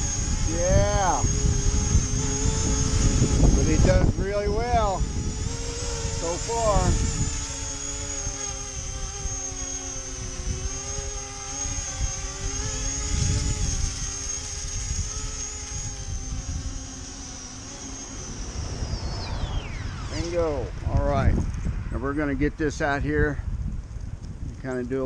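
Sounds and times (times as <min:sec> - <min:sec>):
electric motors and propellers whining: 0:00.0 - 0:25.0
wind rumble on microphone: 0:00.0 - 0:25.0.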